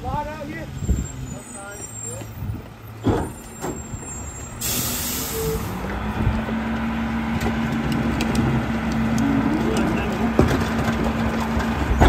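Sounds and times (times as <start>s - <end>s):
diesel engine humming: 0.0s - 12.0s
air brakes hissing: 3.1s - 5.9s.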